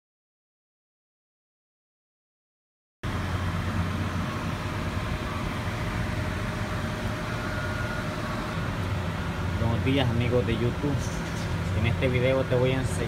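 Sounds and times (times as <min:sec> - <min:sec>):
car engine idling: 0:03.0 - 0:13.0.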